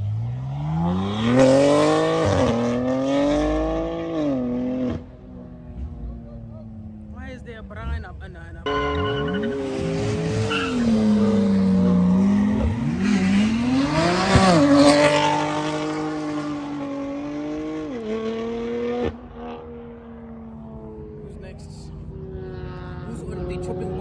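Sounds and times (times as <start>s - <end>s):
car engine revving: 0.0s - 24.0s
tyres squealing: 8.7s - 12.9s.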